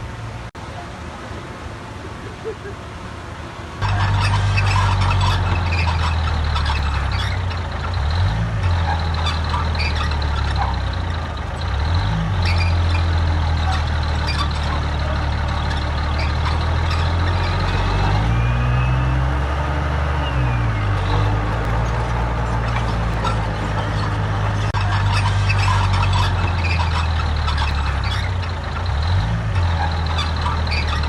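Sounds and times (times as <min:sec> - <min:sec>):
heavy diesel engine under load: 0:00.0 - 0:31.0
metallic clanking: 0:03.8 - 0:18.3, 0:20.8 - 0:31.0.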